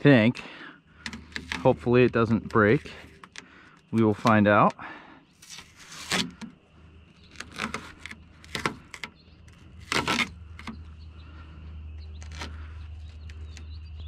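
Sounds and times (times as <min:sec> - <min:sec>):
low steady hum: 0:00.0 - 0:14.0
tape ripping off: 0:05.4 - 0:06.5, 0:07.2 - 0:10.8.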